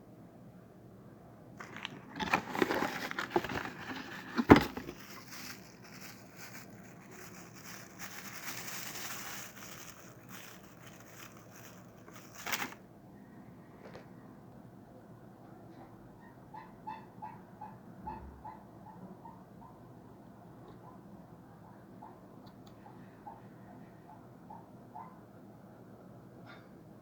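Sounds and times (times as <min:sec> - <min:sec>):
packaging crinkling: 0:01.6 - 0:12.8.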